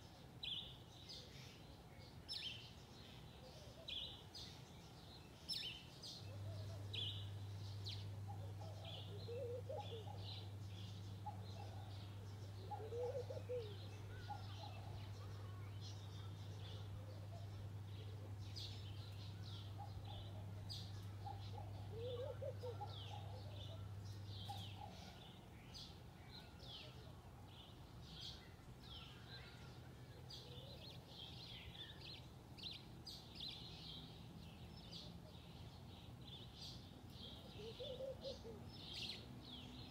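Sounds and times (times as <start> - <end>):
songbirds chirping and twittering: 0.0 - 39.9.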